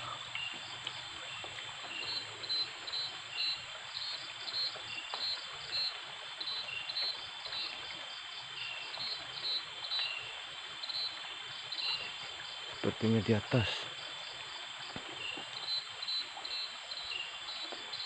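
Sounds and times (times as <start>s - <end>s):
high insect chirps: 0.0s - 7.8s
frogs calling: 0.0s - 18.0s
stream trickling: 0.0s - 18.0s.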